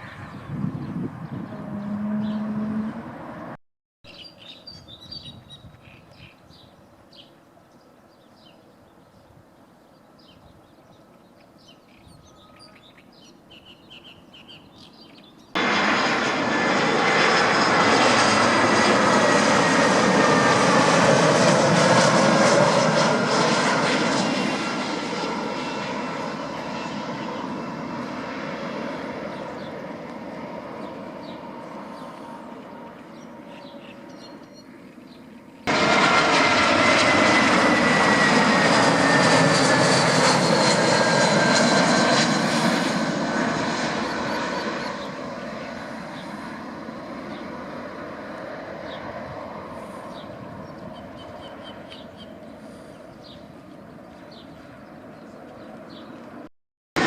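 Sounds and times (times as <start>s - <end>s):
birds chirping: 0.0s - 3.0s, 4.1s - 15.6s, 28.2s - 35.7s, 43.3s - 48.0s, 50.0s - 56.4s
aircraft flying past: 0.0s - 3.6s, 15.2s - 56.5s.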